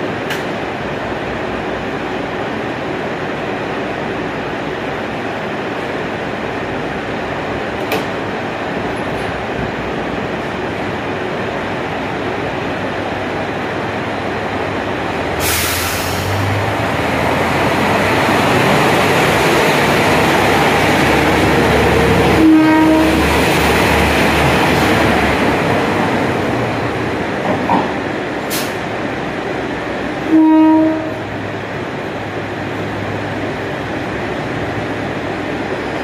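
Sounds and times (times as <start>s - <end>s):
diesel railcar rumbling past: 0.0s - 36.0s
air hiss: 15.4s - 16.5s, 28.5s - 28.9s
train horn blast: 22.3s - 23.3s, 30.3s - 31.3s.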